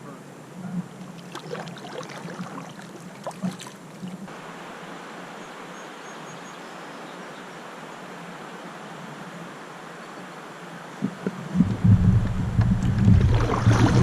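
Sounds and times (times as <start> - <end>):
river water rushing: 0.9 - 14.0.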